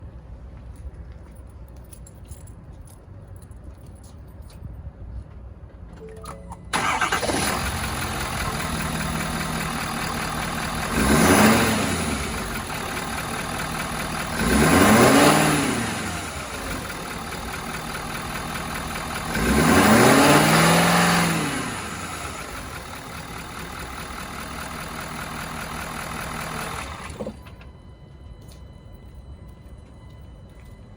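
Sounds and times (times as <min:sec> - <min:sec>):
truck engine starting: 0:06.0 - 0:27.7
truck engine idling: 0:06.7 - 0:19.8, 0:20.5 - 0:28.0
truck engine revving: 0:06.8 - 0:17.0, 0:19.0 - 0:22.8.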